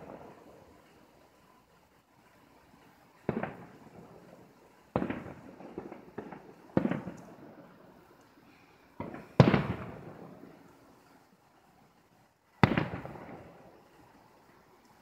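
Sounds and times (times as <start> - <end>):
firework shells bursting: 2.8 - 11.2, 12.6 - 14.2
small firework pops: 3.2 - 3.8, 4.9 - 7.4, 9.0 - 10.8, 12.6 - 13.6.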